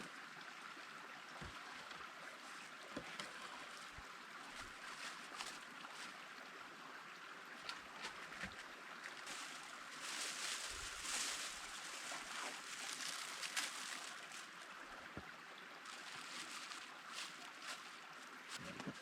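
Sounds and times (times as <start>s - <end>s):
foil blanket crinkling: 4.8s - 6.1s, 9.2s - 14.7s, 15.8s - 18.7s.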